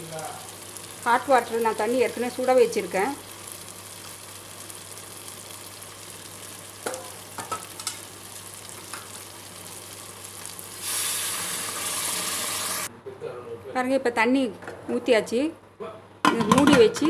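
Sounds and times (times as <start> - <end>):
food sizzling in pot: 0.0 - 12.9
water hissing in hot pan: 0.0 - 12.9.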